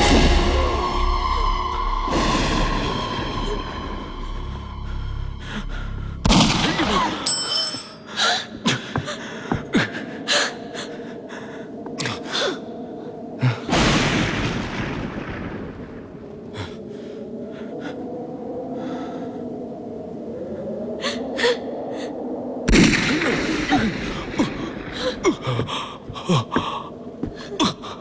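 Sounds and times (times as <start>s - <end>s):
low drone: 0.0s - 8.1s.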